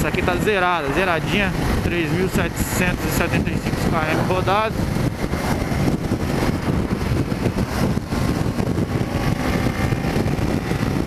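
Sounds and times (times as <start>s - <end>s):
motorcycle engine running: 0.0s - 11.0s
wind buffeting microphone: 0.0s - 11.0s.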